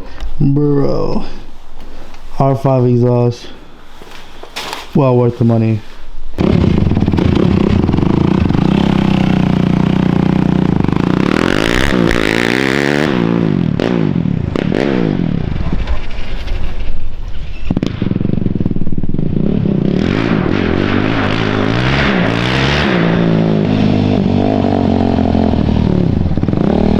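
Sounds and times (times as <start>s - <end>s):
quad engine revving: 6.4s - 16.1s, 19.1s - 26.9s.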